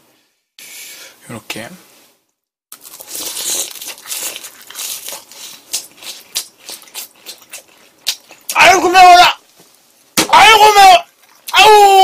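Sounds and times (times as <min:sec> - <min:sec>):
crunching of fried food being chewed: 0:02.7 - 0:08.6.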